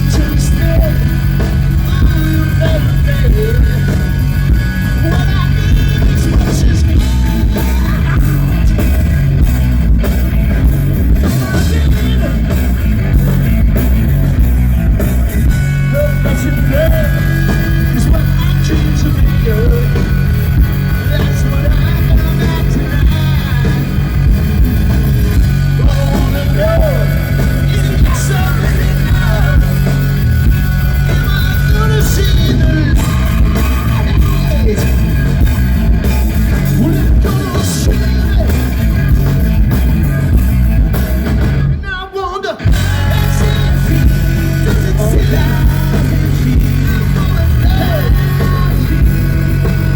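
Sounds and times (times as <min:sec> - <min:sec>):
person singing: 0:00.0 - 0:09.2, 0:11.1 - 0:12.8, 0:15.3 - 0:20.2, 0:20.8 - 0:24.0, 0:25.7 - 0:30.2, 0:30.9 - 0:35.5, 0:36.5 - 0:39.3, 0:41.8 - 0:49.9
bass guitar: 0:00.0 - 0:49.9
drums: 0:00.0 - 0:49.9
electric guitars: 0:00.0 - 0:49.9.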